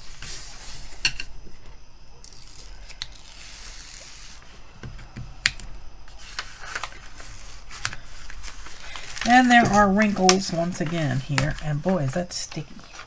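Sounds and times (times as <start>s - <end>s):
plastic sheet rustling: 6.1s - 13.0s.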